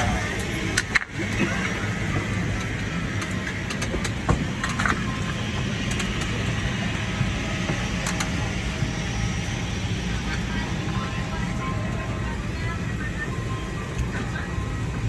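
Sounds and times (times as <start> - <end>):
airliner engines droning: 0.0 - 15.0.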